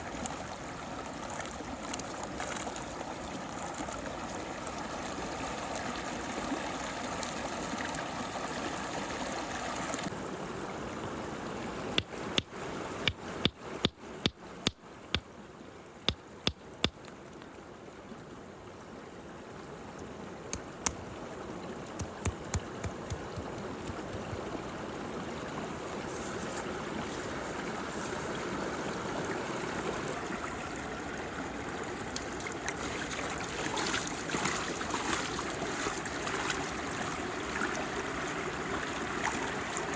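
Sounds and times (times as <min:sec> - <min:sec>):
water swirling and gurgling: 0:17.6 - 0:39.9.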